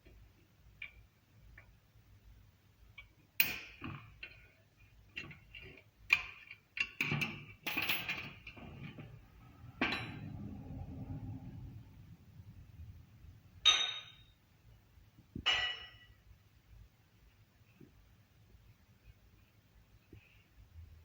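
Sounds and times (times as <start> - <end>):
metal tools clinking and knocking: 5.2 - 9.2
low rumbling noise: 8.7 - 13.7.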